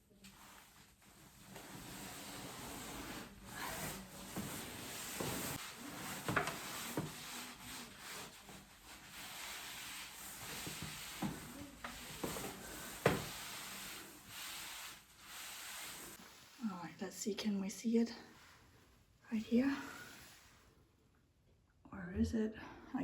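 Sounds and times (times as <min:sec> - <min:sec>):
wall covering rustling strokes: 0:00.0 - 0:16.7.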